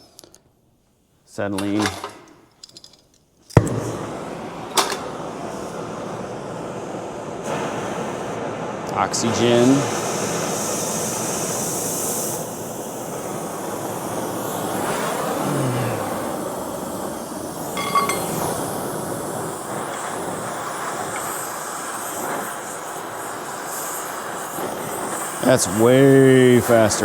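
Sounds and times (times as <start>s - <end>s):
torch flame hissing: 3.6s - 27.0s
metallic clink: 17.8s - 18.7s.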